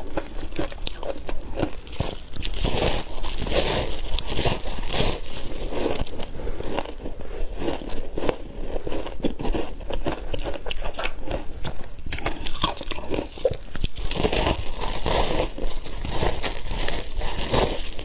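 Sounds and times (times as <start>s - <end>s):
ice being chewed: 0.0s - 18.0s.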